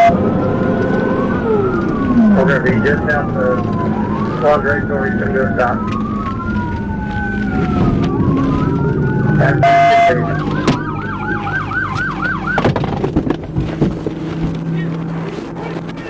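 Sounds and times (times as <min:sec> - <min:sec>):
horn-like siren blast: 0:00.0 - 0:12.8
police siren wailing and yelping: 0:00.0 - 0:13.1
car engine and road noise: 0:00.0 - 0:16.0.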